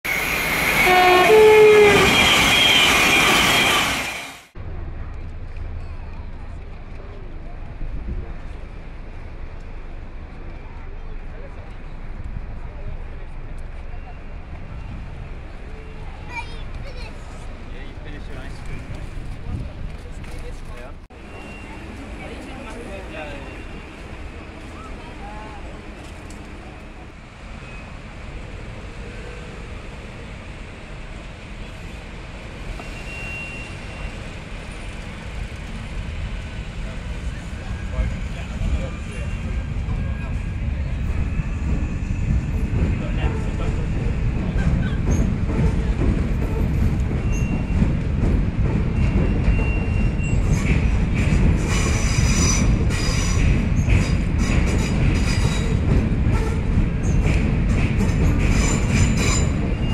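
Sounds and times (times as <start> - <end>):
city traffic noise: 0.0 - 59.9
train rumbling across bridge: 0.0 - 59.9
train wheels squealing: 0.1 - 4.4, 21.2 - 22.0, 32.7 - 35.0, 44.8 - 48.1, 48.9 - 55.8, 58.0 - 59.9.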